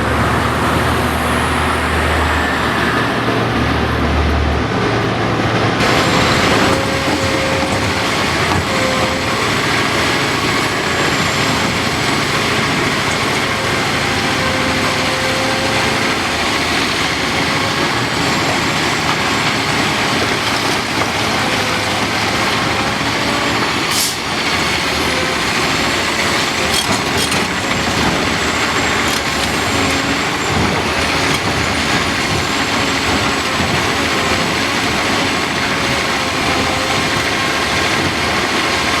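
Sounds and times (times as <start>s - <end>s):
heavy diesel machinery running: 0.0s - 39.0s.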